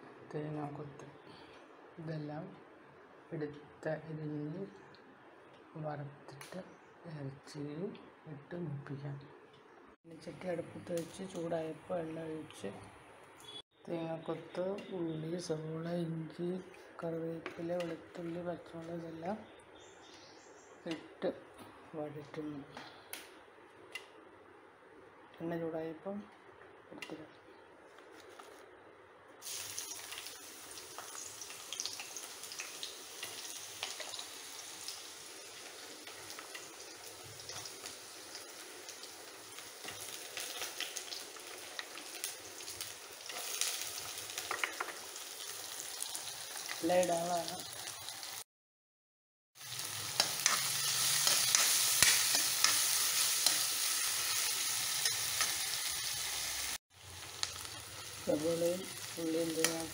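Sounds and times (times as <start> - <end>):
oil crackling and popping: 29.4 - 48.4, 49.6 - 59.9
onions sizzling in hot oil: 29.4 - 48.4, 49.6 - 59.9.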